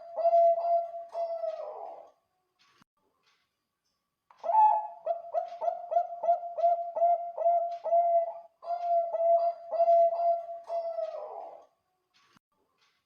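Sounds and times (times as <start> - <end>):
dove cooing: 0.0 - 2.1, 4.4 - 11.6.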